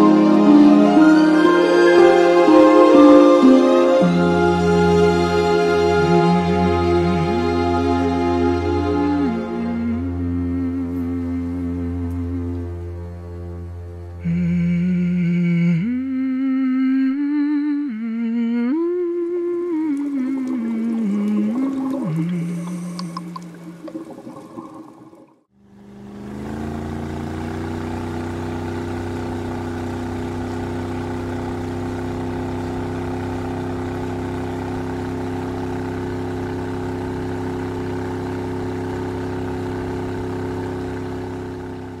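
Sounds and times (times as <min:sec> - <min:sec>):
music: 0:00.0 - 0:16.4
boat engine running: 0:18.8 - 0:42.0.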